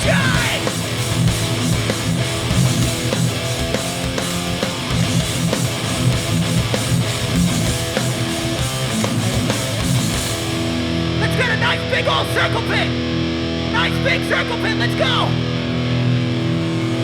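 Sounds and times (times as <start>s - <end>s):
punk band playing live: 0.0s - 17.0s.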